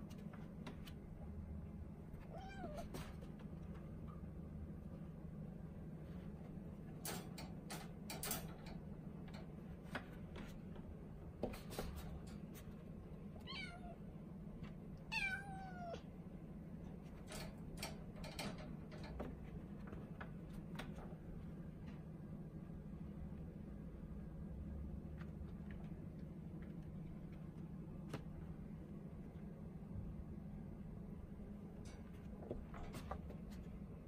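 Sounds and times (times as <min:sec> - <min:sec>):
steady low hum: 0:00.0 - 0:34.0
kitten meowing: 0:02.3 - 0:02.8, 0:13.5 - 0:14.0, 0:15.1 - 0:16.0.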